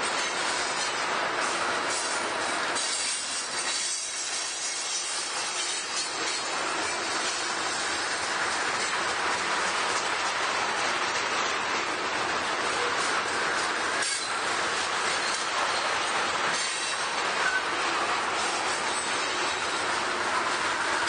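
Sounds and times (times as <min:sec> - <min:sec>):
train wheels rolling on track: 0:00.0 - 0:21.0.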